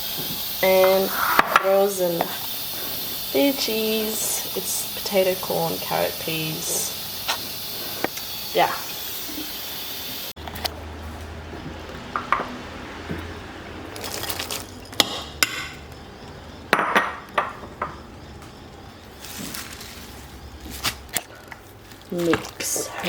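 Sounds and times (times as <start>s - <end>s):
metal kitchen utensils clinking: 0.6s - 2.5s.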